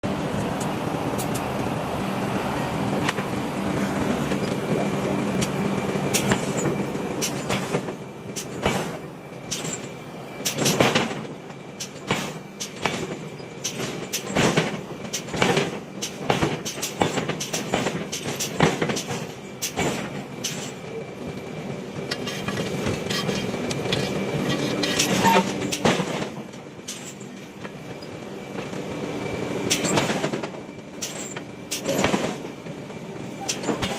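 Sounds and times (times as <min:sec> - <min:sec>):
machinery hum: 0:00.0 - 0:15.2.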